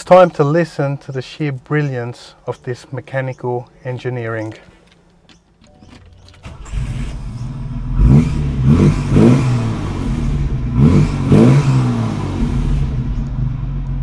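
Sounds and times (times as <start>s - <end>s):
car engine starting and revving: 6.2s - 14.0s.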